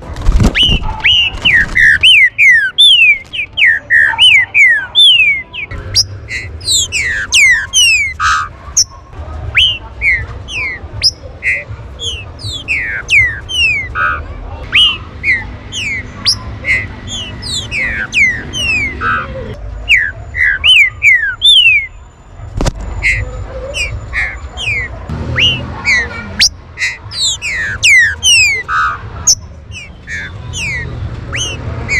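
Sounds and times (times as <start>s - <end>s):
birds whistling calls: 0.3s - 22.0s, 22.9s - 31.9s.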